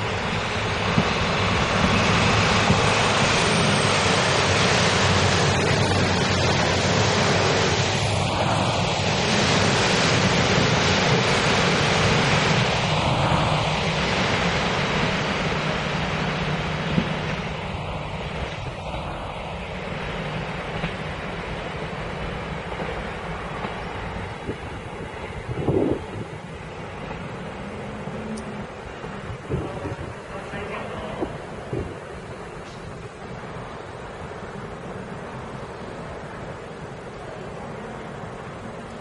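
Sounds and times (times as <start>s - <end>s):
train wheel and rail noise: 0.0s - 39.0s
wind on microphone: 23.6s - 33.1s.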